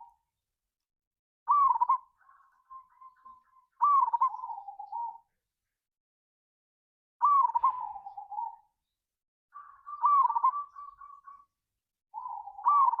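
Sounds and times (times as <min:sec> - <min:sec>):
dove cooing: 0:01.5 - 0:05.3, 0:07.2 - 0:08.6, 0:09.6 - 0:11.5, 0:12.2 - 0:13.0.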